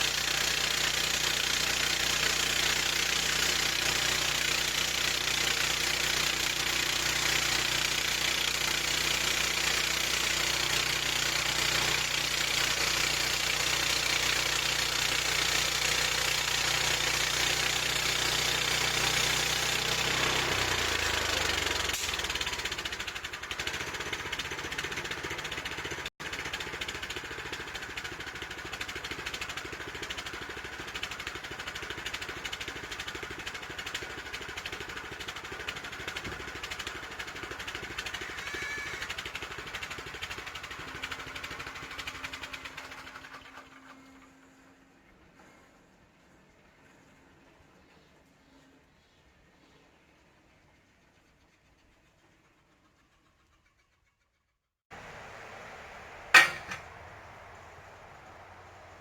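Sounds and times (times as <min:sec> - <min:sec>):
sawmill engine running: 0:00.0 - 0:45.5, 0:54.9 - 0:59.0
steady hiss: 0:55.0 - 0:59.0.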